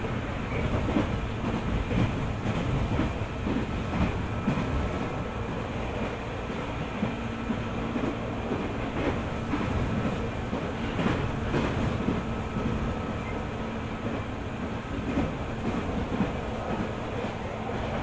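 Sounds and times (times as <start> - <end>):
track knocks and clatter: 0.0 - 18.0
train wheels rumbling on rails: 0.0 - 18.0.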